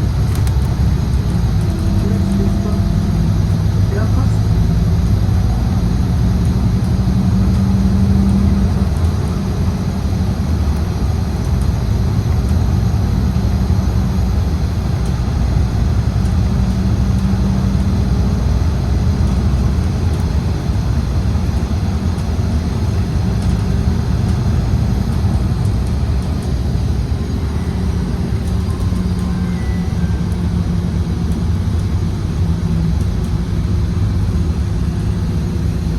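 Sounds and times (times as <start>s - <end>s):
bus engine rumbling: 0.0s - 35.9s
humming tone: 26.2s - 32.1s.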